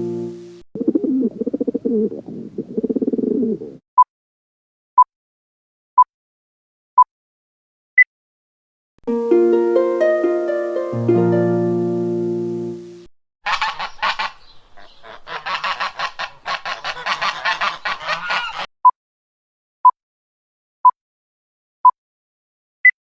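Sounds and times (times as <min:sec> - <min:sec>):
bird's harsh repeated calls: 0:00.8 - 0:03.8, 0:13.5 - 0:18.7.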